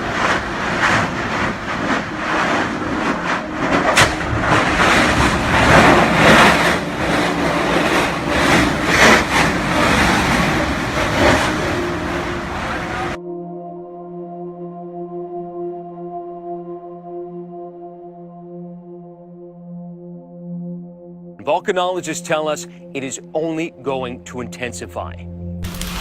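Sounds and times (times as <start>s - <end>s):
roar of venting gas and lava: 0.0s - 13.2s.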